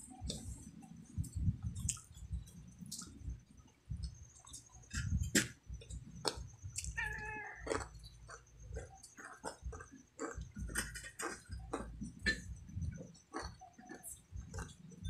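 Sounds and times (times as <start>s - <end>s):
crispy food crunching: 1.6s - 3.2s, 5.8s - 15.0s.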